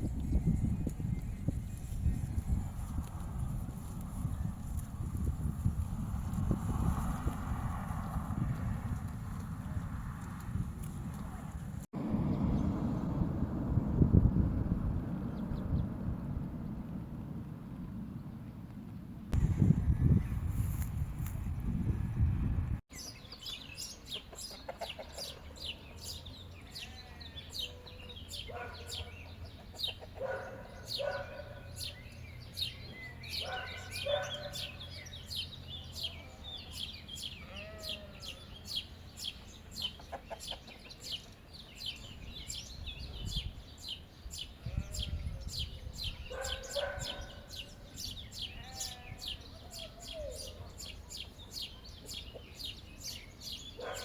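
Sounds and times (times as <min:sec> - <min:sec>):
chickens clucking: 0:24.2 - 0:25.6, 0:29.2 - 0:30.4, 0:39.8 - 0:41.4.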